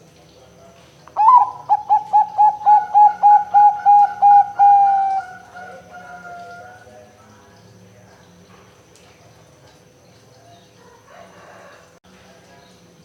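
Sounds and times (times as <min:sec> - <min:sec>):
dove cooing: 0:01.2 - 0:06.9.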